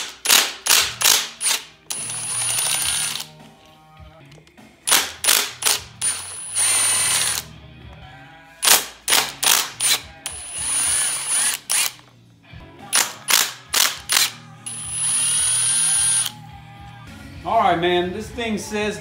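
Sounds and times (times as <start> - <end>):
power tool whirring: 0.2 - 3.4, 4.9 - 7.5, 9.1 - 12.0, 13.0 - 16.4
sharp metallic clicks: 12.9 - 14.8.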